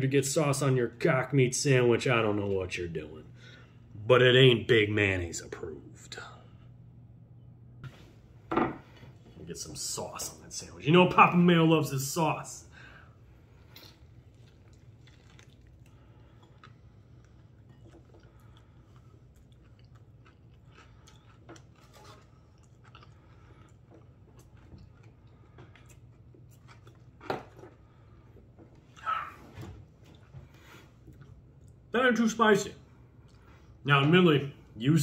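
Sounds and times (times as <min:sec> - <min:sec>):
man chewing crunchy food: 0:13.4 - 0:29.1.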